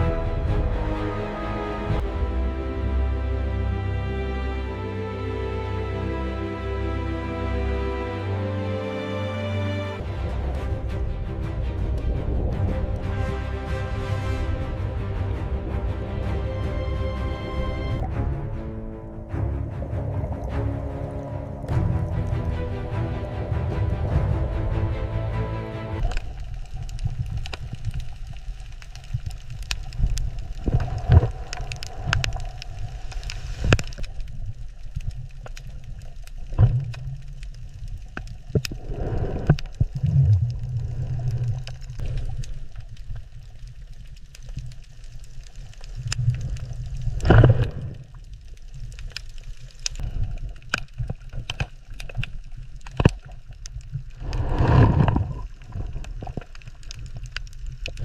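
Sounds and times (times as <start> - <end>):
underwater low rumble: 0.0 - 4.6, 10.0 - 58.0
surges of water: 0.0 - 18.7, 19.3 - 58.0
sharp clicks and crackles: 26.0 - 58.0.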